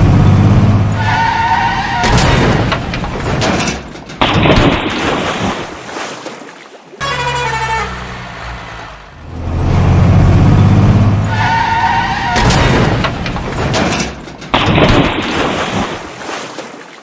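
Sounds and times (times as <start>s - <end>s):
clattering sharp knocks: 2.0s - 5.0s, 12.4s - 15.3s.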